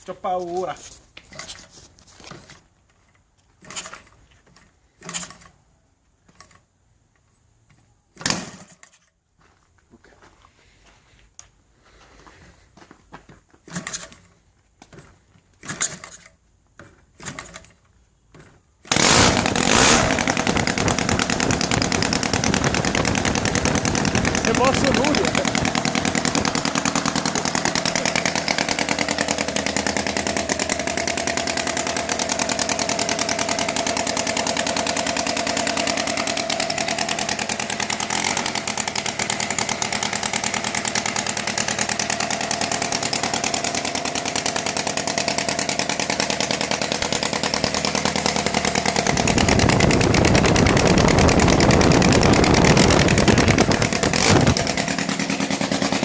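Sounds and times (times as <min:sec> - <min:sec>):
engine running steadily: 0:18.9 - 0:56.0.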